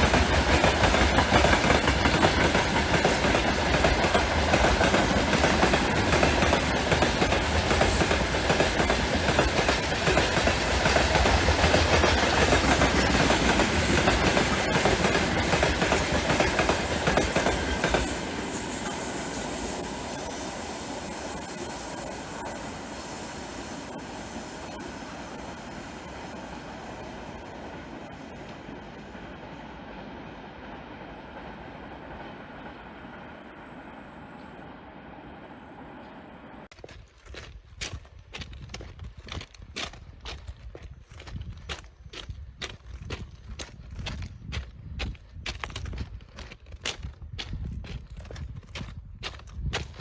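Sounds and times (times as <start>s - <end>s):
wheels clacking over rail joints: 0.0s - 33.5s
freight train passing: 0.0s - 36.7s.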